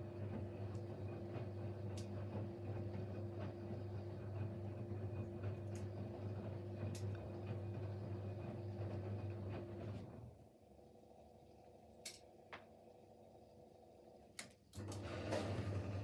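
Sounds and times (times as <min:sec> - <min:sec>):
washing machine motor hum: 0:00.0 - 0:10.6, 0:14.8 - 0:16.0.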